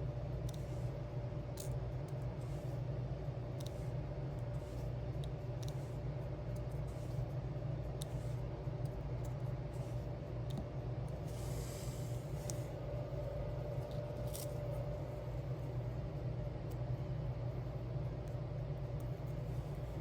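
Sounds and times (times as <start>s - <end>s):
low room hum: 0.0s - 20.0s
pen clicking on gems: 0.4s - 0.8s, 3.5s - 7.2s, 7.9s - 11.2s.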